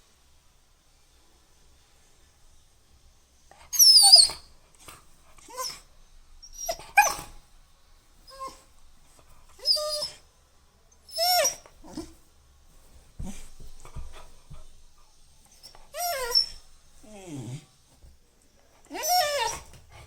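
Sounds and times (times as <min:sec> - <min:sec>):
puppy whining and yelping: 0:03.6 - 0:04.5, 0:05.4 - 0:05.8, 0:06.4 - 0:07.4, 0:08.3 - 0:08.7, 0:09.5 - 0:10.2, 0:11.1 - 0:12.2, 0:15.5 - 0:17.6, 0:18.9 - 0:20.0.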